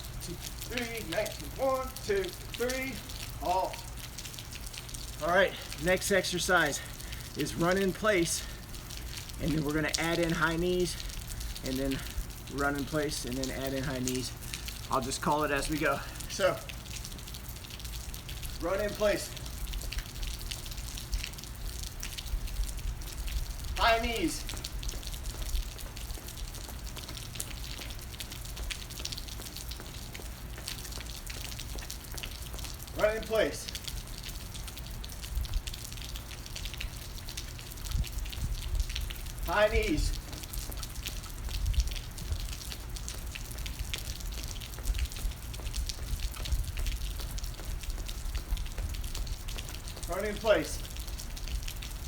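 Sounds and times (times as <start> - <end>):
raindrops ticking on a surface: 0.0 - 52.0
steady low rumble: 0.0 - 52.0
steady rain falling: 0.0 - 52.0.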